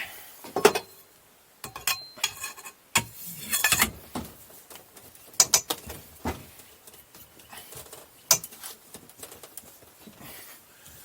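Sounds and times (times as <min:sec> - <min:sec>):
steel tools clinking on metal: 0:01.6 - 0:04.0.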